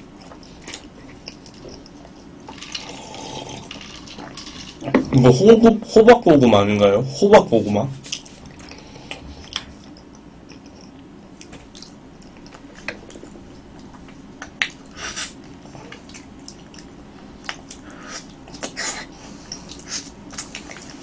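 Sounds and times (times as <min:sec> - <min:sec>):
chewing soft food: 0:00.0 - 0:04.9, 0:08.1 - 0:21.0.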